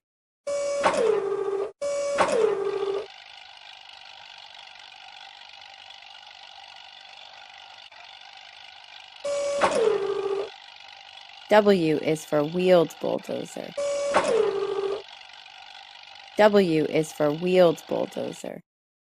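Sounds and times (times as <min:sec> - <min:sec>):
machine hum: 0:00.5 - 0:18.6
pitched call sliding down: 0:09.3 - 0:10.5.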